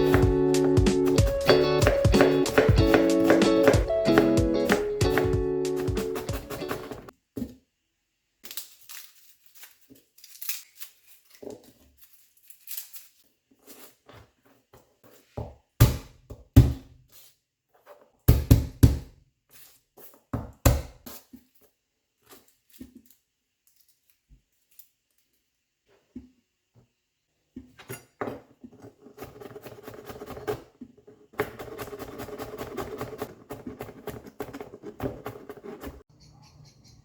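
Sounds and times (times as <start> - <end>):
clattering rustling noise: 8.5 - 15.4.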